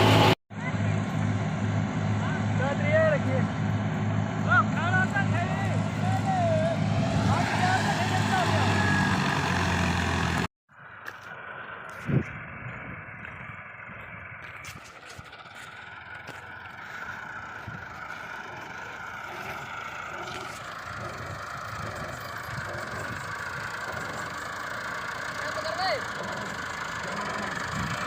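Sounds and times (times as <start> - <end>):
heavy machine engine running: 0.0 - 10.5, 11.3 - 28.0.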